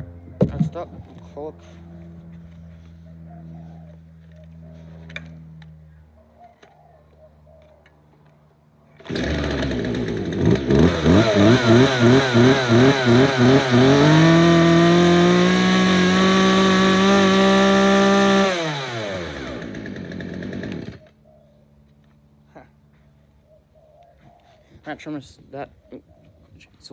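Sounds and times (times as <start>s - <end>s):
string trimmer engine running: 9.0s - 21.1s.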